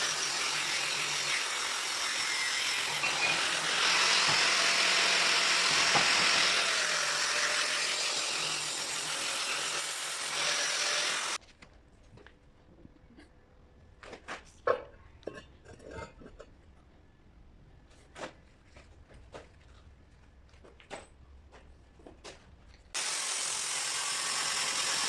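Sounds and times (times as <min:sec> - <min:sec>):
power tool grinding on steel rail: 0:00.0 - 0:11.4, 0:23.0 - 0:25.0.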